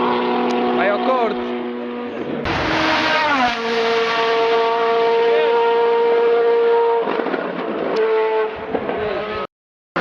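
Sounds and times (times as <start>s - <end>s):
race car engine at high revs: 0.0s - 6.8s.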